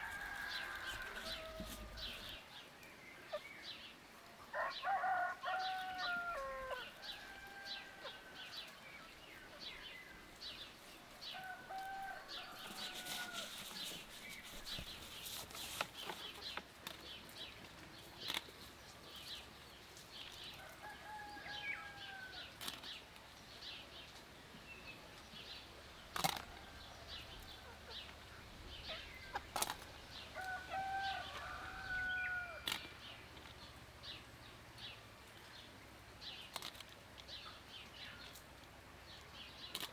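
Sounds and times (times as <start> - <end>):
roosters crowing: 0.0 - 2.4, 4.5 - 8.8, 11.2 - 15.0, 20.6 - 22.5, 28.8 - 33.0
small birds chirping: 0.0 - 4.9, 5.5 - 39.9.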